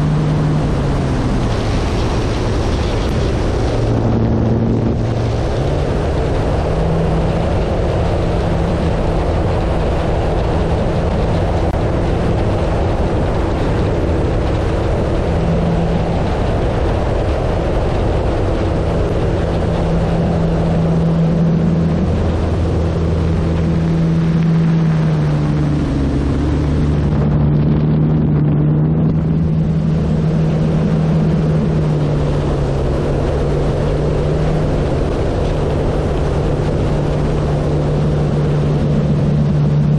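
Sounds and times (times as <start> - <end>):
electric motor and propeller hum: 0.0 - 39.9
wind rushing: 0.0 - 39.9.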